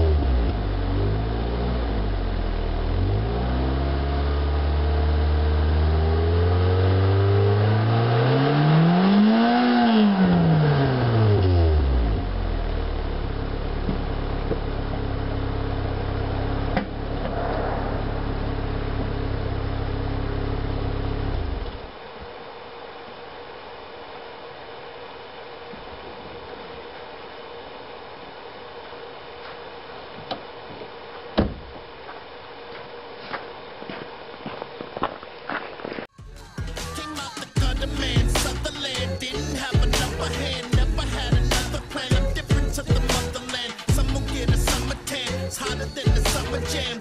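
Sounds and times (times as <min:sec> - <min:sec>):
car engine revving and idling: 0:00.0 - 0:22.0, 0:37.6 - 0:47.0.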